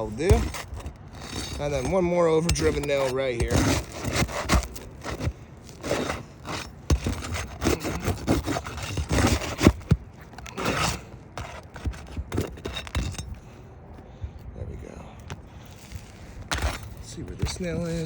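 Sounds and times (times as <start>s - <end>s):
tool scraping roof shingles: 0.0s - 13.6s, 15.2s - 18.0s.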